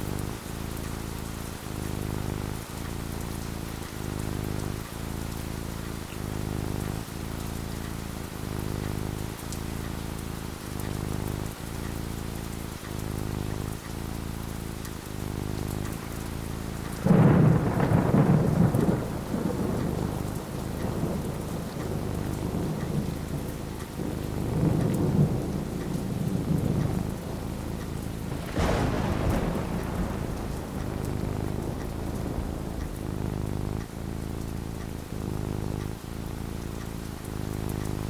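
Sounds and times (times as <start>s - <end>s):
steady rain: 0.0s - 38.0s
low thunder rumble: 15.4s - 38.0s
thunder clap: 17.0s - 36.0s.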